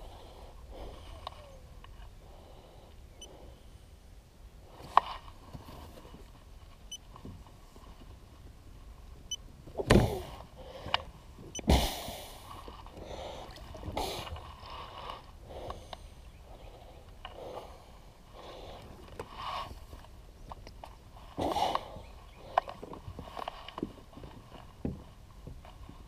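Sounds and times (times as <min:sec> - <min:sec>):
water noise: 0:11.4 - 0:15.6.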